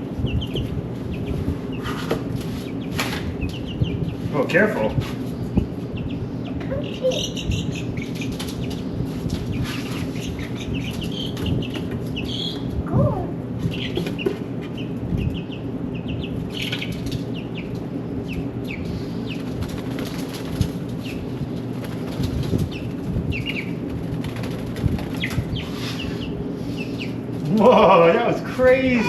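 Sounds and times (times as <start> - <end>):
steady low hum: 0.0 - 29.0
chickens clucking and squawking: 5.4 - 29.0
wings fluttering: 7.0 - 12.8, 13.6 - 27.4.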